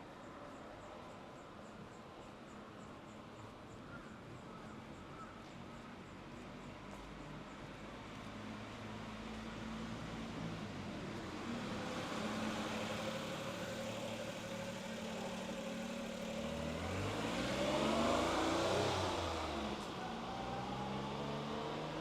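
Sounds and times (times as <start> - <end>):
car engine speeding up and passing: 11.3 - 22.0.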